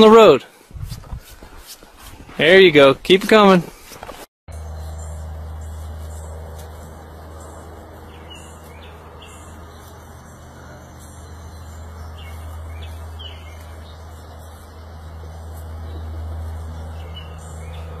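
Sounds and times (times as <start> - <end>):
bird chirps: 4.5 - 18.0.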